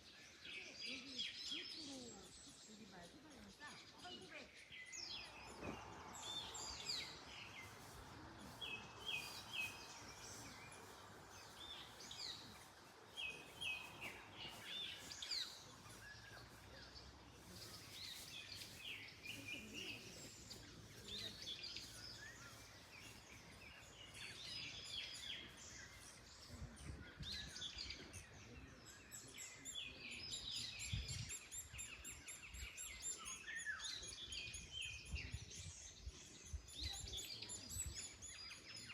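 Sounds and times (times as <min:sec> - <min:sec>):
birds singing and chirping: 0:00.0 - 0:38.9
wind rustling in trees: 0:00.0 - 0:38.9.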